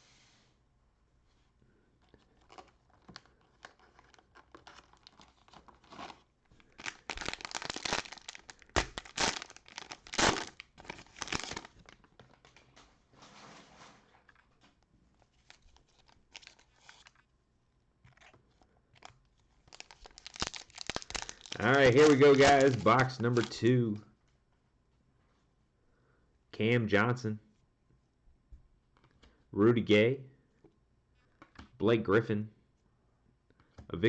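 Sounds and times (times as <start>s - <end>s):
cellophane tearing and crinkling: 2.3s - 12.6s, 15.3s - 17.2s, 19.0s - 23.6s.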